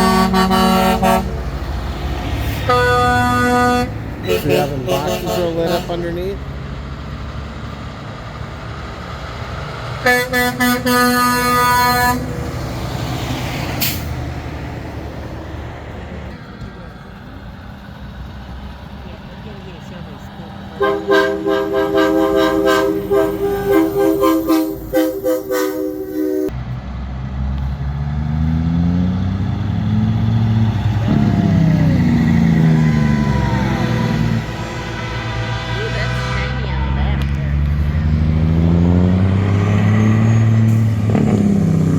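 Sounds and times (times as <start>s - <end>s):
truck air horn: 0.0s - 1.7s, 2.4s - 6.2s, 10.0s - 12.4s, 20.8s - 26.6s, 32.8s - 38.0s
truck engines rumbling: 0.0s - 41.9s.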